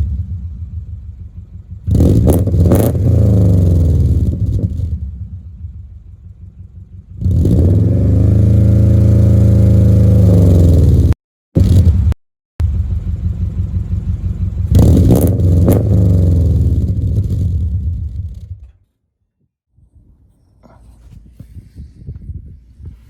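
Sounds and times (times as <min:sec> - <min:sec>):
car engine revving: 0:00.0 - 0:12.2, 0:12.8 - 0:18.7.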